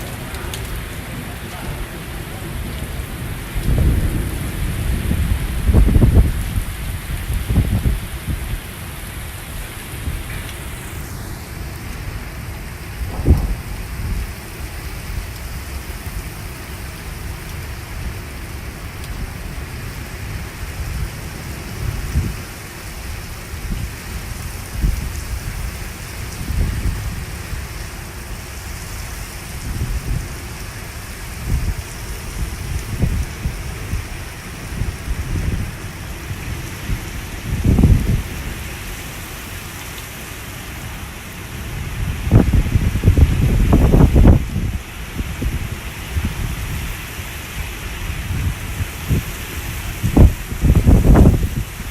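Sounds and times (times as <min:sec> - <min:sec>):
low rumbles: 0:00.0 - 0:08.8, 0:09.6 - 0:17.6
heavy rain falling: 0:00.0 - 0:51.9.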